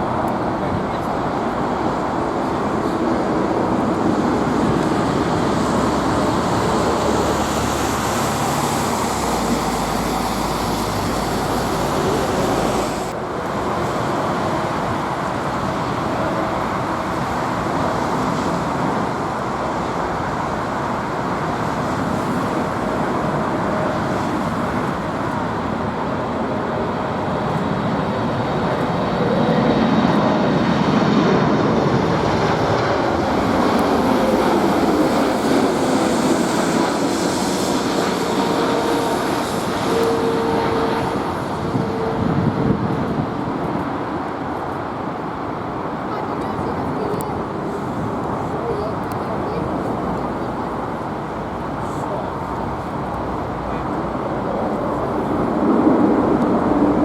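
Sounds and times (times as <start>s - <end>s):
jet engines roaring steadily: 0.0s - 57.0s.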